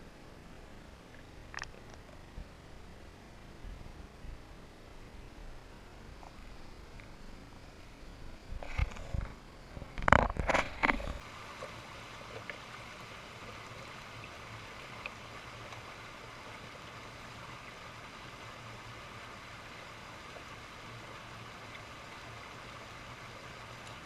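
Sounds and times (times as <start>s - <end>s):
creek water flowing: 8.6s - 24.0s.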